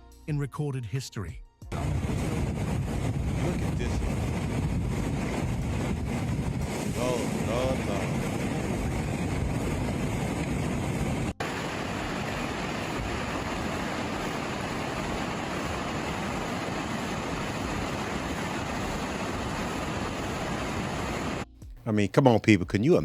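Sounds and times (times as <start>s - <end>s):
floodwater rushing: 5.6s - 8.6s, 11.4s - 21.4s.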